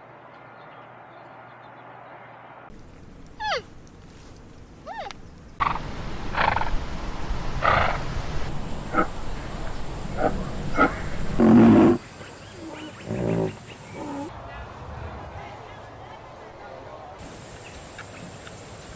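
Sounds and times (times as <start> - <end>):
rough noisy animal calls: 8.7 - 14.3.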